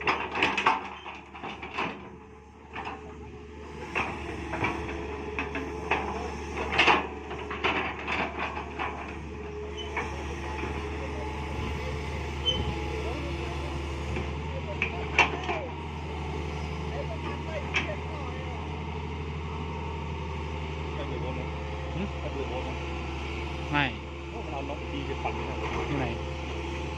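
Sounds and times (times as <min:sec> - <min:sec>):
short knocks and clanks: 0:00.0 - 0:03.2, 0:03.8 - 0:10.9
excavator engine hum: 0:00.0 - 0:26.9.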